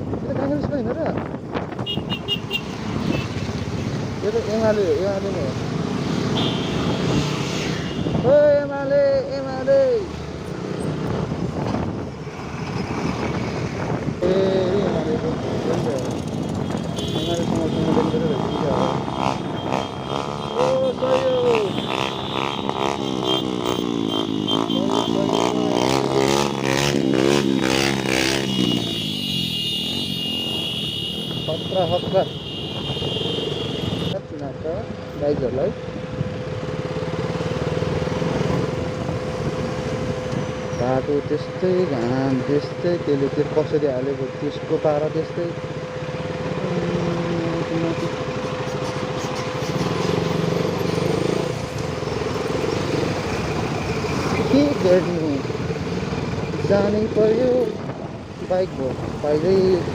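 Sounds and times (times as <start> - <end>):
motorcycle engine running: 45.4 - 56.4.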